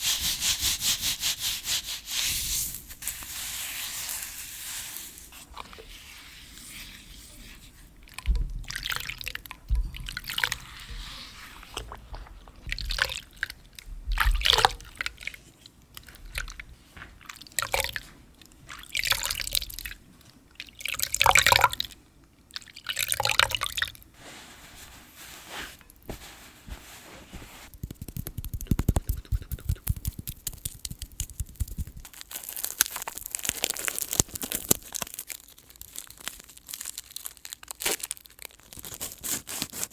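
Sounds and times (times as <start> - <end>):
hands rubbing soapy water: 0.0 - 9.2, 10.1 - 13.5, 24.2 - 32.1.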